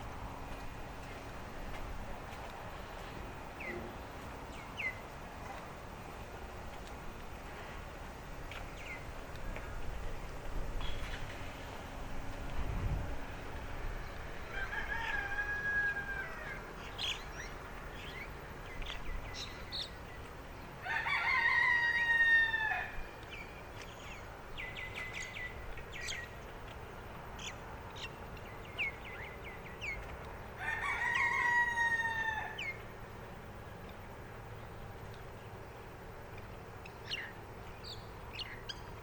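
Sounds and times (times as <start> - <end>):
rooster crowing: 14.4 - 16.8, 20.8 - 23.1, 30.6 - 32.8
small birds chirping: 16.6 - 20.8, 23.2 - 30.5, 33.6 - 39.0.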